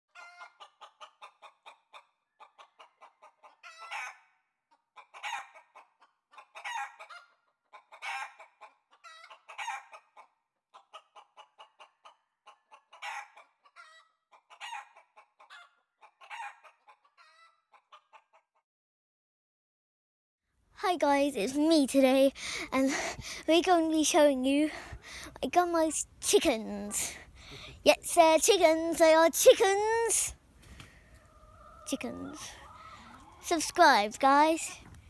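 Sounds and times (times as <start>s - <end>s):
chicken cackling: 0.1s - 18.5s, 28.6s - 35.0s.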